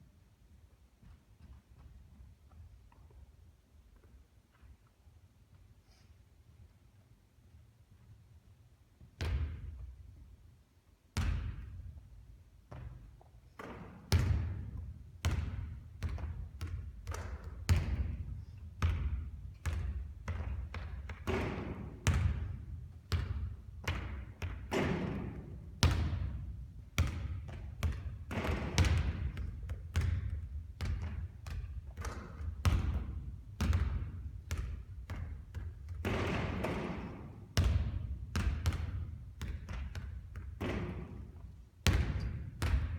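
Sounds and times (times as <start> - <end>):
basketballs bouncing on court: 9.2 - 9.9, 11.2 - 12.0, 12.7 - 42.9.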